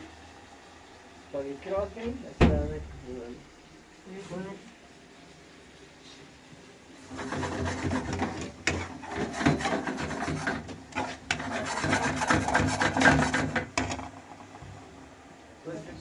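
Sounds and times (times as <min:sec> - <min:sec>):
rough rasping scraping: 0:07.1 - 0:13.7.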